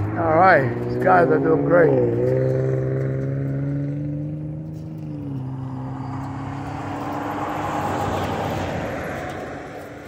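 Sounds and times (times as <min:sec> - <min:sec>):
motor vehicle engine passing: 0:00.0 - 0:10.0
road noise: 0:00.0 - 0:10.0.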